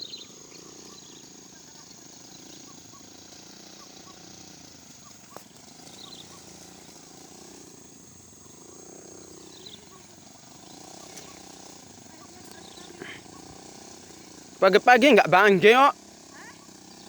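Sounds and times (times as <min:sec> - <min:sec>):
high-pitched insect drone: 0:00.0 - 0:17.0
small engine running: 0:00.0 - 0:17.0.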